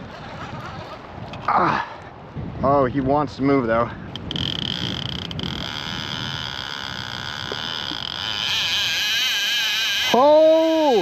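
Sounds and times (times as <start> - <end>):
fishing reel drag buzzing: 0.0 - 1.4, 4.1 - 11.0.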